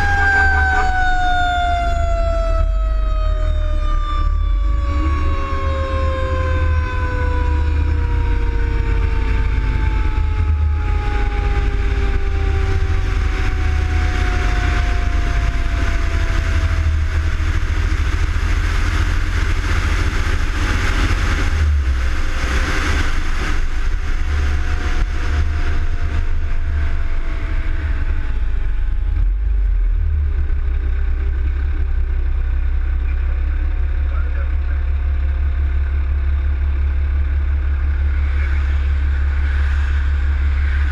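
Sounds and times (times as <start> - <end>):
fire engine siren winding down: 0.0 - 29.6
truck engine and road noise: 0.0 - 40.9.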